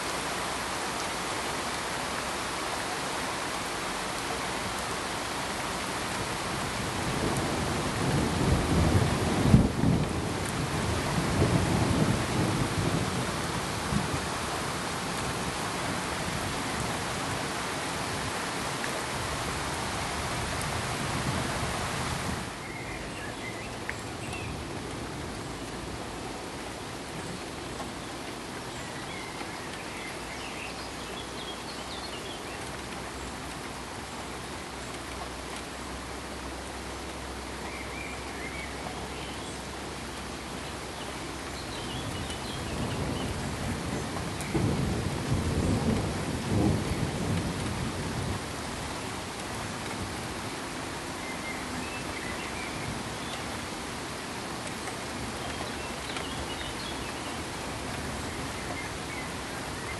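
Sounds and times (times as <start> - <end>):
steady rain hiss: 0.0 - 59.9
rumble of thunder: 6.6 - 14.4, 42.0 - 49.0.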